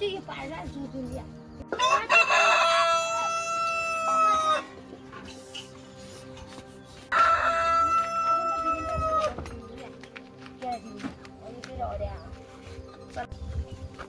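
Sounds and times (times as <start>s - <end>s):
rooster crowing: 1.8s - 4.7s, 7.1s - 9.3s.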